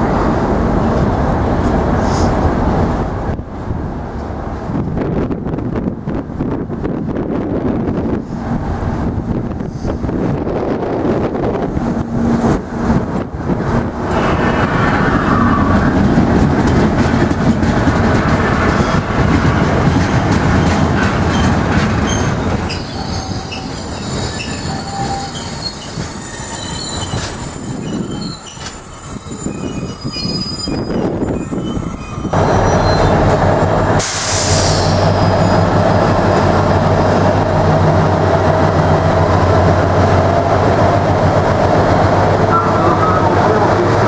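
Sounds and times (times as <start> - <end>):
diesel locomotive engine passing: 0.0 - 44.0
wagons rumbling over rails: 0.0 - 44.0
high-pitched wheel squeal: 22.0 - 33.3, 34.3 - 36.4.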